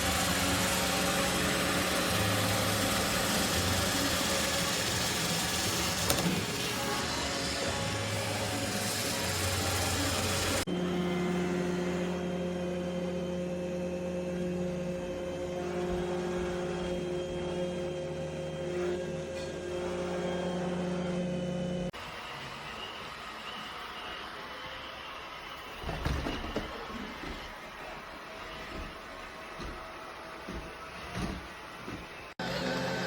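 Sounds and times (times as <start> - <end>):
motor hum: 0.0 - 22.3.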